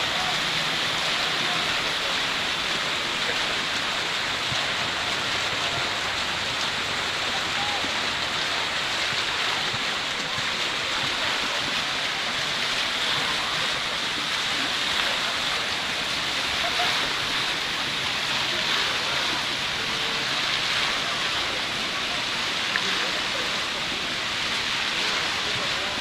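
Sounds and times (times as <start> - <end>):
fountain water jets splashing: 0.0 - 26.0.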